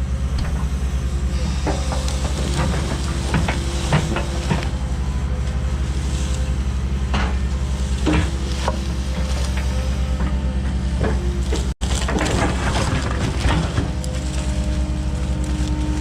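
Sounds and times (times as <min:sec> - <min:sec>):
diesel engine running under load: 0:00.0 - 0:16.0
clunks of logs and steel: 0:00.2 - 0:16.0.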